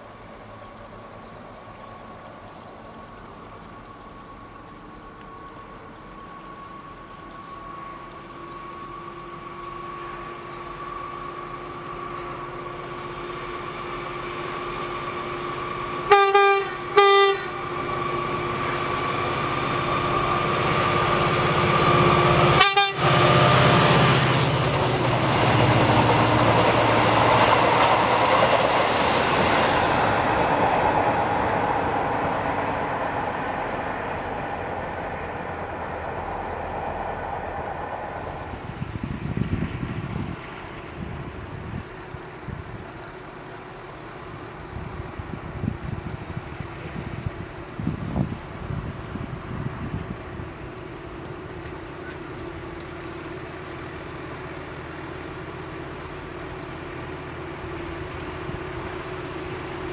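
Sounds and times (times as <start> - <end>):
freight train humming: 0.0 - 59.9
train horn blasts: 15.9 - 24.6.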